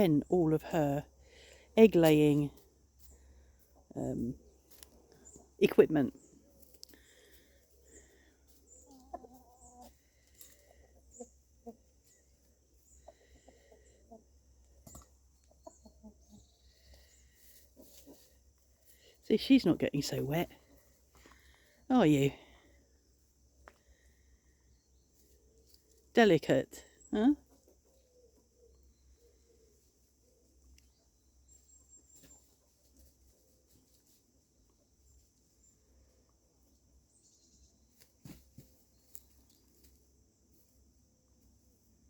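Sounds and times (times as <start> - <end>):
hens clucking: 2.9 - 19.0.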